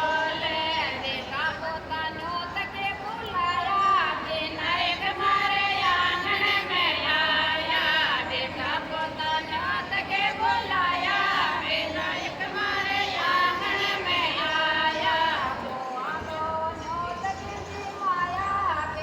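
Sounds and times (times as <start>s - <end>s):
women singing folk song together: 0.0s - 19.0s.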